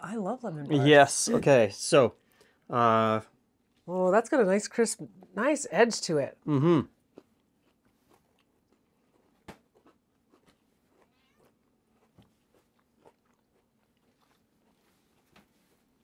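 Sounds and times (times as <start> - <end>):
crunchy chewing: 7.0 - 16.0.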